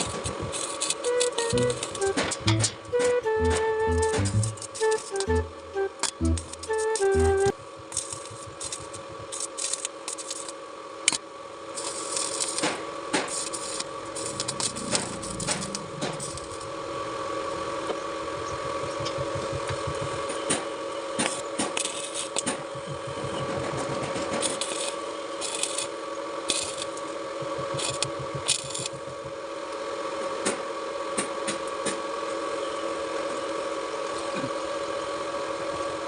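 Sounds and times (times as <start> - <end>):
welding arc crackling and hissing: 0.0 - 5.4, 6.0 - 16.8, 21.2 - 29.3
welding machine hum: 0.0 - 11.2, 11.8 - 20.4, 21.2 - 29.4
sharp clicks: 26.8 - 29.3.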